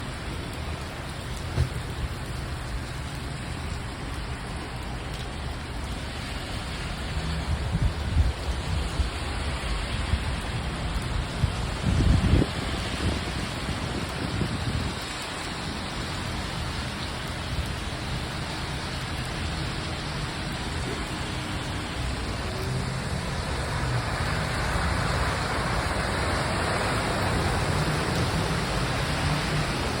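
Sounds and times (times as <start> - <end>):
cars driving through water: 0.0 - 30.0
steady rain falling: 0.0 - 30.0
brief thump: 1.5 - 1.8.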